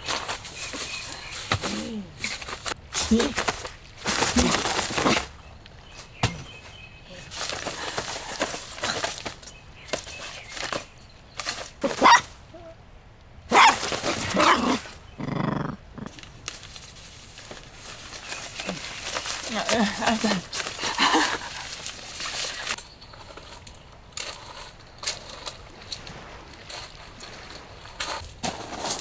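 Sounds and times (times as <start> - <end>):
dog barking: 11.8 - 12.3, 13.5 - 14.8.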